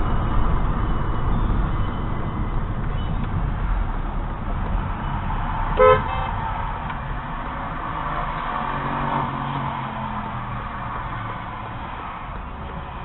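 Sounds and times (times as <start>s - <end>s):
car road and engine noise: 0.0s - 13.0s
car horn toot: 5.8s - 6.5s.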